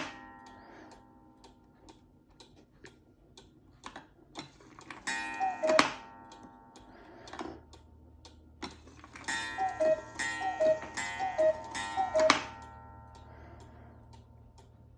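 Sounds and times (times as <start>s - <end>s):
clock ticking: 0.0s - 14.9s
two-note cuckoo call: 5.3s - 6.1s, 9.3s - 13.0s.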